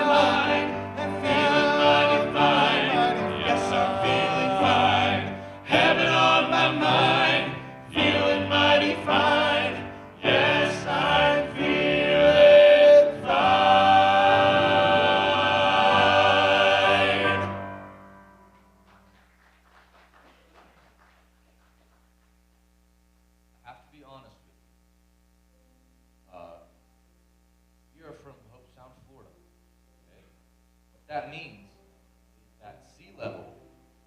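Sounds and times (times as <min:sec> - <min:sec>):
vocal group singing gospel harmony: 0:00.0 - 0:17.8.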